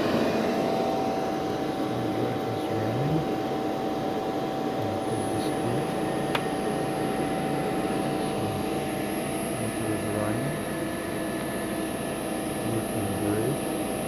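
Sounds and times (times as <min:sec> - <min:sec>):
constant hum: 0:00.0 - 0:14.0
cooling fan whirring: 0:00.0 - 0:14.0
high-pitched whine: 0:04.8 - 0:14.0.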